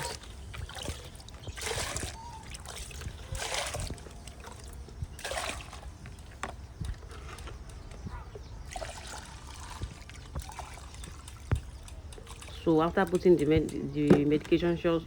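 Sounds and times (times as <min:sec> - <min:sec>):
water splashing while poured: 0:00.0 - 0:06.4, 0:08.6 - 0:12.6.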